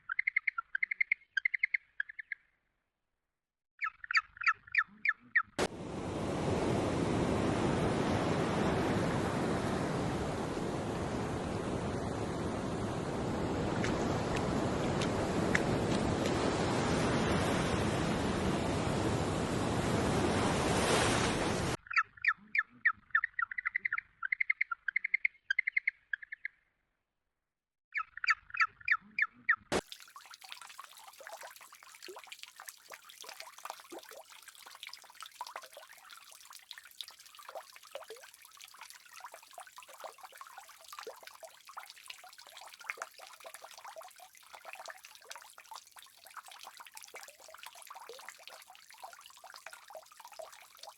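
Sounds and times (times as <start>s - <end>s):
animal chirping: 21.9s - 26.4s
crackling trickling noise: 29.8s - 50.9s.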